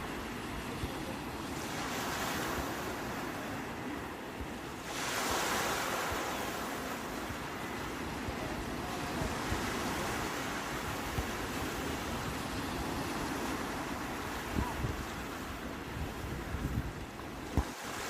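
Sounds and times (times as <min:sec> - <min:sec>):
sea waves washing on shore: 0:00.0 - 0:18.0.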